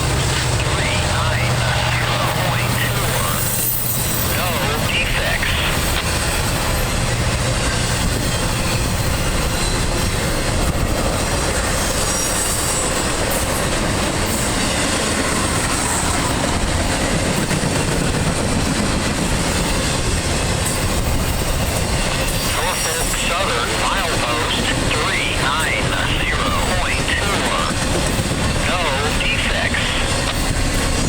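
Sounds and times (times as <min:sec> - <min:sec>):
train wheels on rails: 0:00.0 - 0:31.0.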